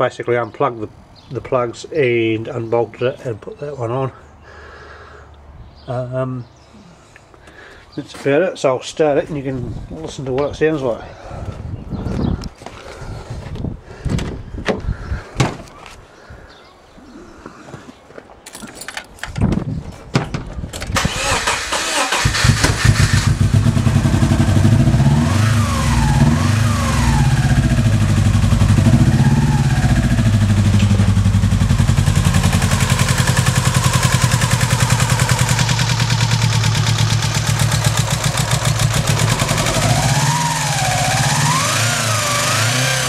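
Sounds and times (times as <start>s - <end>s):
engine starter cranking: 20.8s - 24.5s
engine running unevenly: 22.6s - 43.0s.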